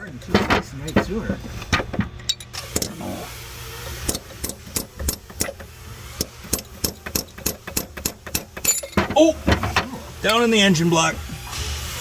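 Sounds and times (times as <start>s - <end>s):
hammer striking metal chisel: 4.0s - 9.7s.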